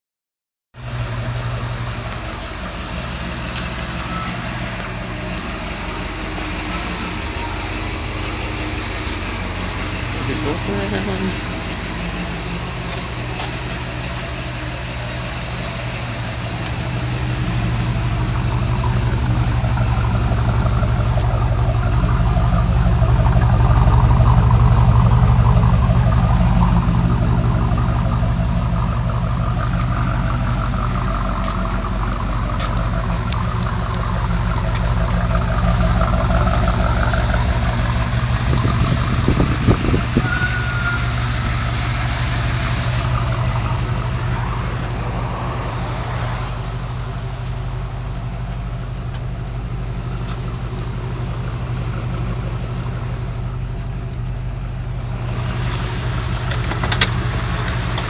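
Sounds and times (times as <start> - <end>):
car engine idling: 0.7 - 58.0.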